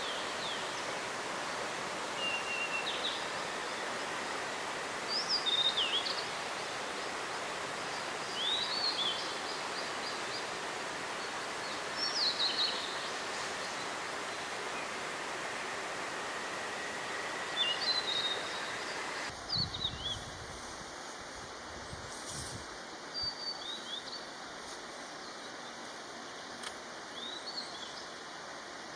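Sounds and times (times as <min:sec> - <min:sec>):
mountain stream rushing: 0:00.0 - 0:19.4
flycatcher whistling song: 0:00.0 - 0:20.2.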